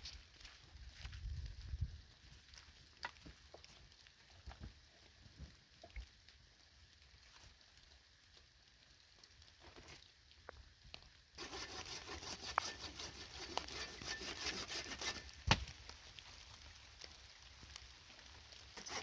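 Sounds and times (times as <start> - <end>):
wood being rasped: 11.4 - 15.6, 18.8 - 19.0.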